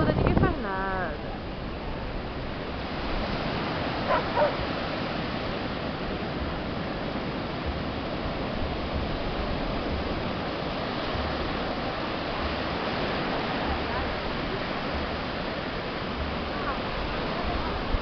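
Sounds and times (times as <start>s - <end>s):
surf: 0.0s - 18.0s
wind: 0.0s - 18.0s
dog barking: 4.1s - 4.6s.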